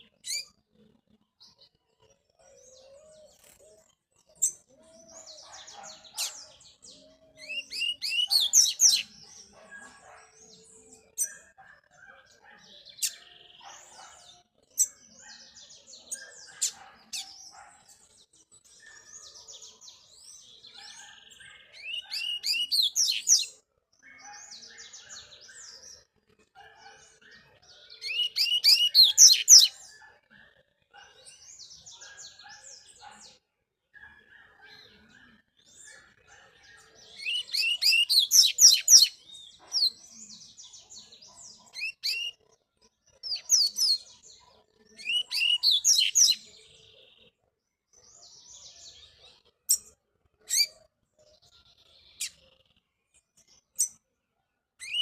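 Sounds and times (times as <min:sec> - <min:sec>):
soft bird chirps and calls: 0:00.0 - 0:55.0
songbird singing: 0:00.0 - 0:55.0.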